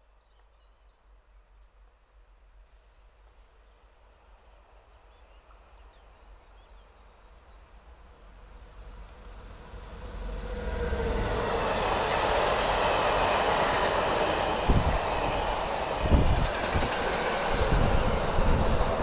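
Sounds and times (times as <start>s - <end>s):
freight train rolling on rails: 7.3s - 19.0s.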